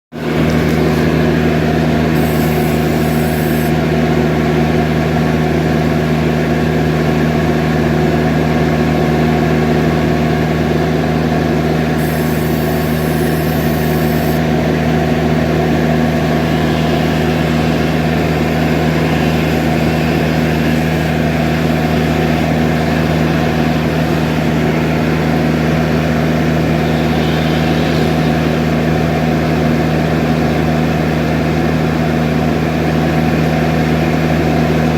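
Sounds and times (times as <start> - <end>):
loader engine running: 0.2 - 34.9
short high hisses: 2.2 - 3.8, 12.0 - 14.6, 26.5 - 29.5.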